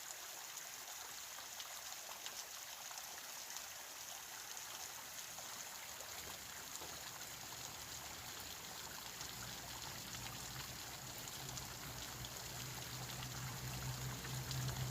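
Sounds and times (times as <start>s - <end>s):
water rushing over rocks: 3.6s - 14.9s.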